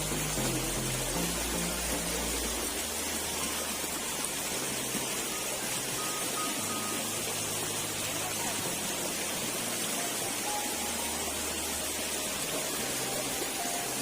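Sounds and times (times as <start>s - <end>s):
river water rushing: 0.0s - 14.0s
soft background music: 0.0s - 14.0s.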